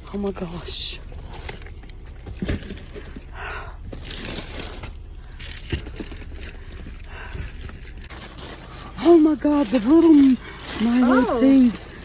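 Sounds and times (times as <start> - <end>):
plastic bags rustling: 3.9 - 12.0.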